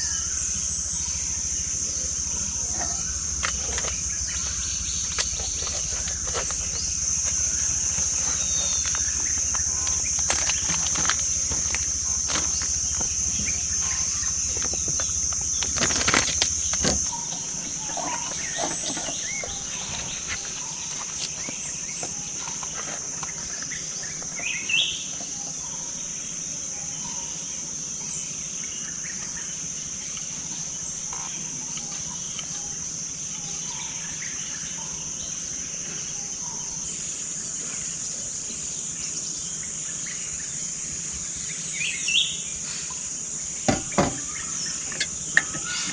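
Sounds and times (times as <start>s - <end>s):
high-pitched insect drone: 0.0s - 21.5s
sharp clicks and knocks: 2.7s - 21.6s, 43.6s - 45.9s.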